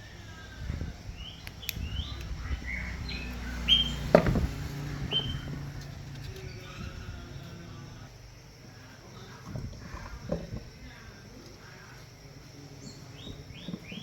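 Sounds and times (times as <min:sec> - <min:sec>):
low hum: 0:00.0 - 0:13.6
birds chirping: 0:00.0 - 0:14.0.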